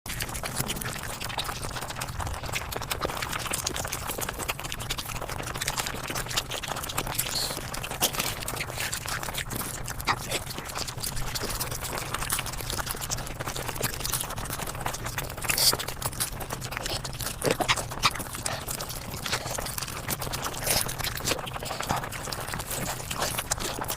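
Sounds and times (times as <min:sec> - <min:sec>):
sped-up chewing and crunching: 0:00.1 - 0:23.9.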